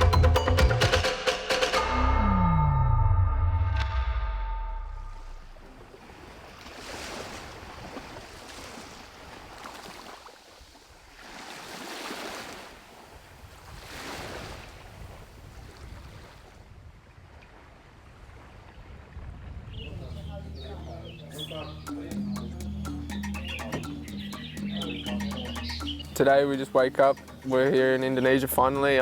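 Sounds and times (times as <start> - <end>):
sea waves washing onto beach: 5.7 - 16.6.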